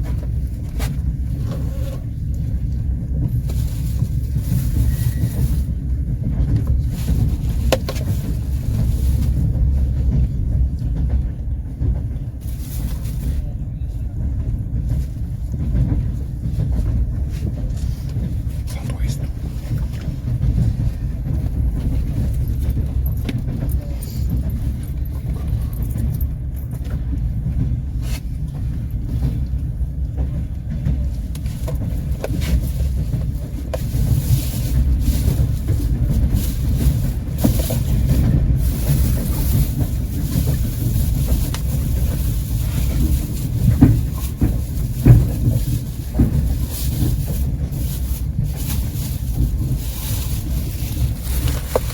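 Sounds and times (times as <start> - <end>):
train rumbling on rails: 0.0 - 51.9
wheels clicking over rail joints: 19.5 - 51.9.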